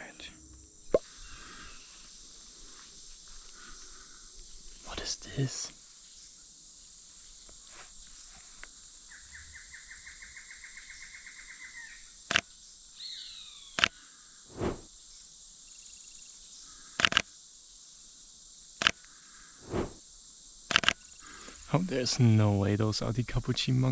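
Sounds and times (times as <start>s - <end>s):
high insect buzz: 14.5s - 14.9s, 15.7s - 17.8s, 18.5s - 21.8s
bird trilling: 15.7s - 16.3s, 21.0s - 21.7s.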